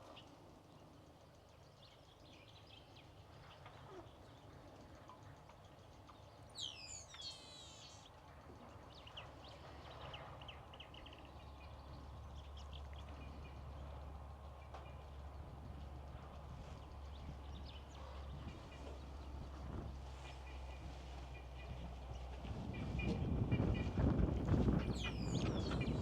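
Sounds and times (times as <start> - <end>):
birds chirping: 5.7 - 19.4, 20.2 - 26.0.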